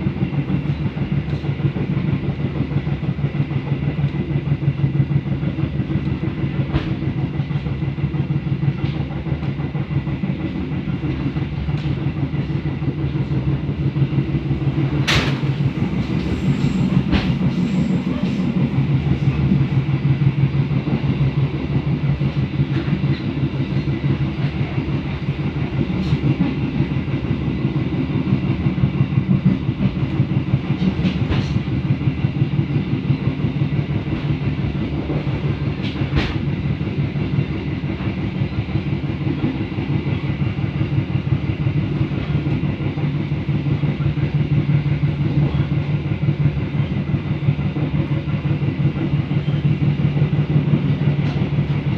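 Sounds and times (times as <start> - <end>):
train rumbling on track: 0.0 - 51.9.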